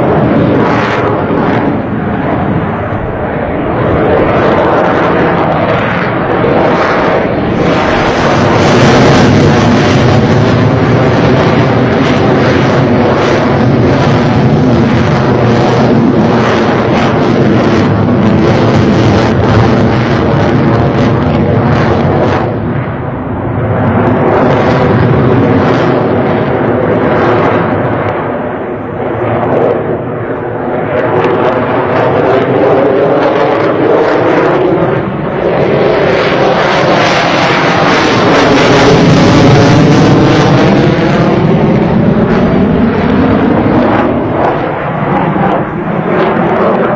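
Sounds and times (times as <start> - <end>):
jet fighter engines running: 0.0 - 46.9.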